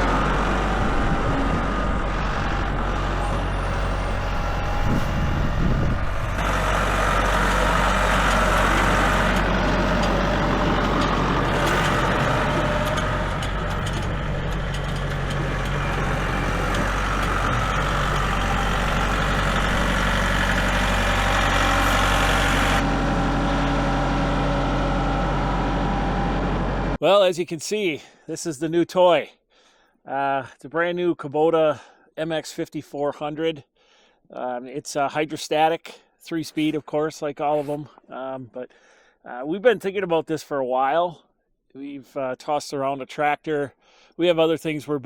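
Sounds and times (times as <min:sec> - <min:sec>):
engine running steadily: 0:00.0 - 0:27.0.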